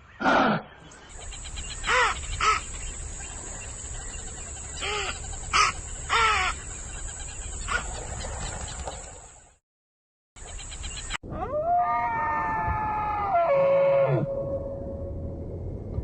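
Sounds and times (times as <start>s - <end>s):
bird calling: 0.0s - 9.3s, 10.4s - 11.2s.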